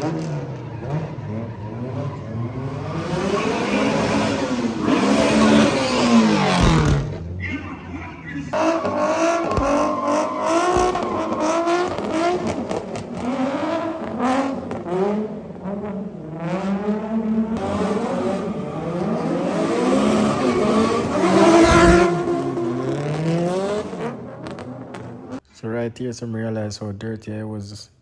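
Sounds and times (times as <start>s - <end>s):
car engine revving: 0.0s - 25.4s
tyre squeal: 8.6s - 12.4s, 19.2s - 22.3s.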